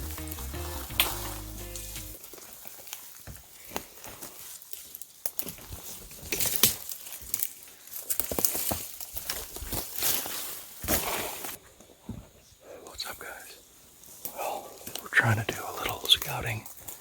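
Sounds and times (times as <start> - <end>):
footsteps crunching through dry leaves: 0.0 - 11.6.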